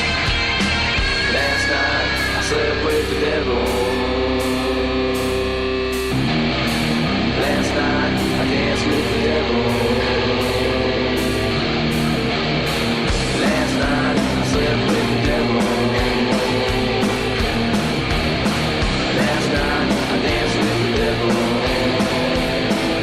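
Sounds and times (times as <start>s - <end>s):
drums: 0.0s - 23.0s
electric guitar chords: 0.0s - 23.0s
cymbal keeping a steady beat: 8.2s - 23.0s.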